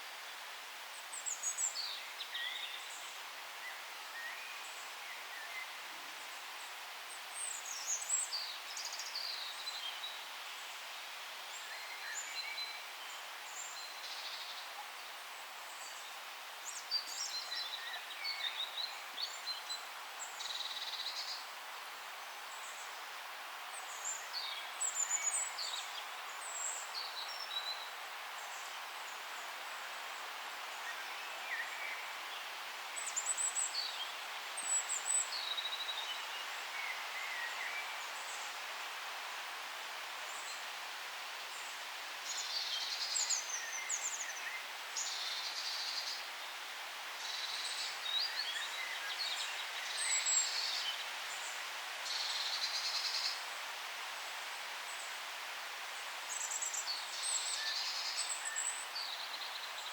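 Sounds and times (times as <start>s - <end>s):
forest ambient hiss: 0.0s - 59.9s
songbirds singing: 41.4s - 54.2s, 55.9s - 59.9s.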